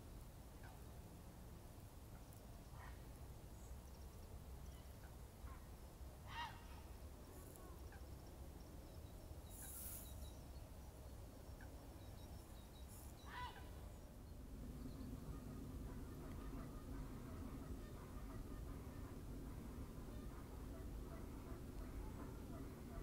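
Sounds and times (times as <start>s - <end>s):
distant bird calls: 2.2s - 23.0s
brief hiss: 9.5s - 10.3s
steady low rumble: 10.2s - 23.0s.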